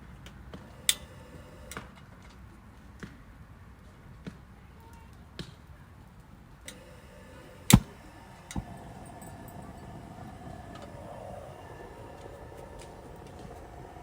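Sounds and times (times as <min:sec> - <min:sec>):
faint steady hum: 0:00.0 - 0:02.0, 0:06.6 - 0:14.0.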